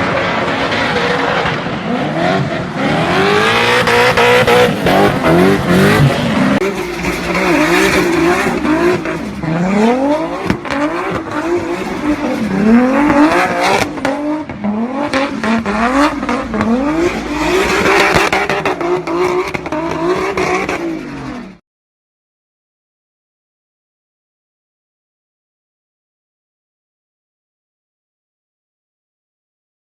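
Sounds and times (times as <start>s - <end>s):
car engine revving hard: 0.0s - 21.6s.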